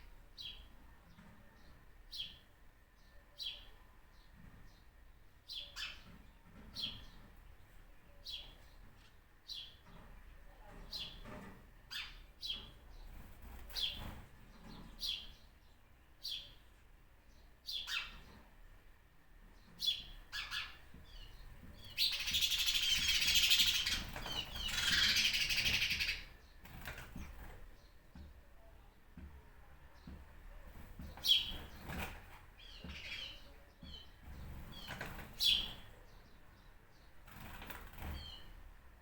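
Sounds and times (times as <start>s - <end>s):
birds chattering rapidly: 10.8s - 16.6s, 19.4s - 28.3s, 29.9s - 38.7s.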